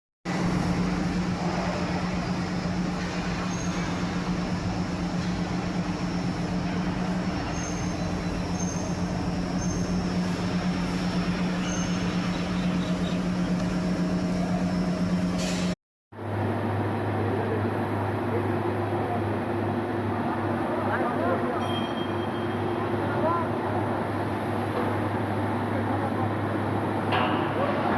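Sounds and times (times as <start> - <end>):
industrial machinery drone: 0.3 - 20.9.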